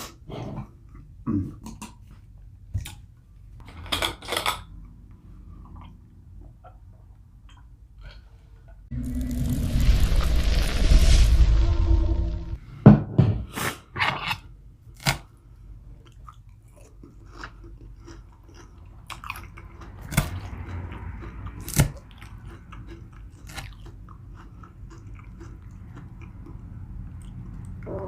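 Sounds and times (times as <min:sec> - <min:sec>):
person chewing food: 0:15.9 - 0:27.9
sharp crunches of food: 0:16.8 - 0:26.6.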